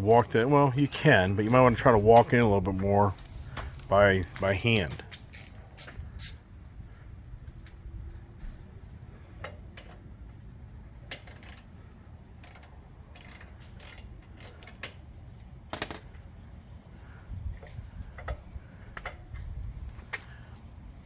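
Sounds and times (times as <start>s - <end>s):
socket ratchet clicking: 11.1s - 11.7s, 12.4s - 15.0s.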